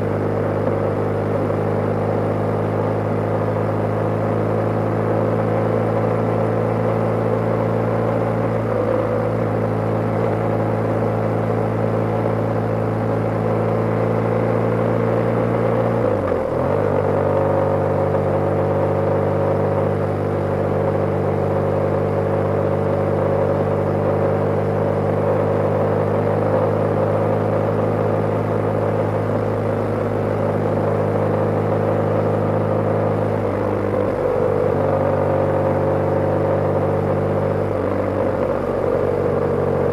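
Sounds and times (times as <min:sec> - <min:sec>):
motorcycle engine running: 0:00.0 - 0:39.9
wind and road noise: 0:22.6 - 0:39.9.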